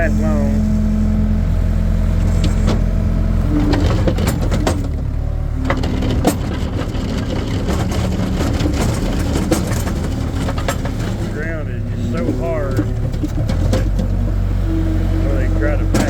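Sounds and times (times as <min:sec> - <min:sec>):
skid steer engine running: 0:00.0 - 0:16.0
bucket crunching gravel: 0:05.7 - 0:16.0.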